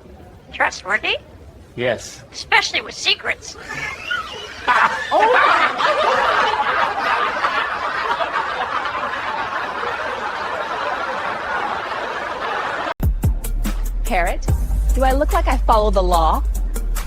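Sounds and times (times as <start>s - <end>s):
group of people laughing: 3.6s - 13.0s.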